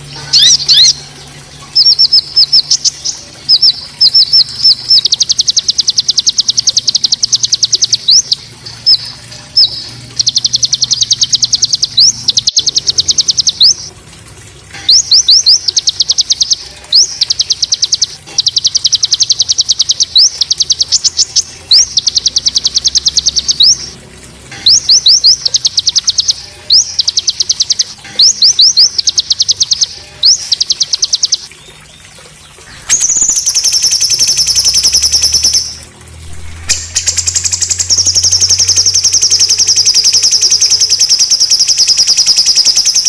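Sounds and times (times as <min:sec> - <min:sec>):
songbird giving harsh trills: 0:14.8 - 0:31.5.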